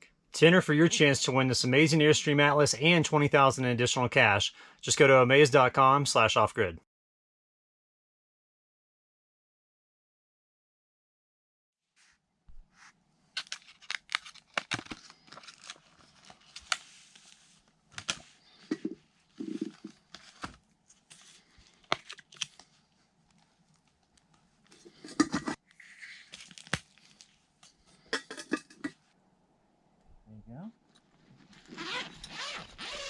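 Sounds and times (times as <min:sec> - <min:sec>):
crinkling and rustling material: 0:12.0 - 0:28.0, 0:30.9 - 0:33.0.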